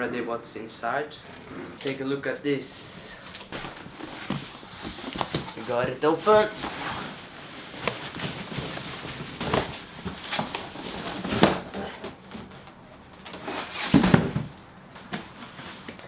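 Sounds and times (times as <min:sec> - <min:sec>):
cardboard rubbing and scraping: 0:03.5 - 0:11.5.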